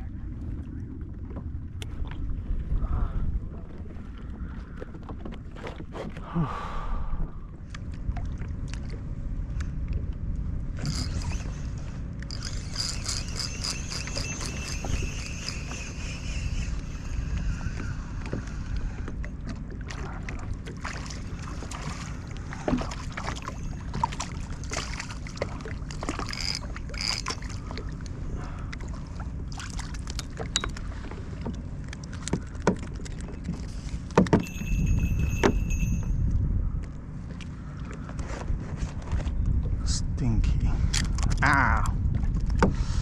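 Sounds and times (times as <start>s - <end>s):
water wash and rumble: 0.0s - 43.0s.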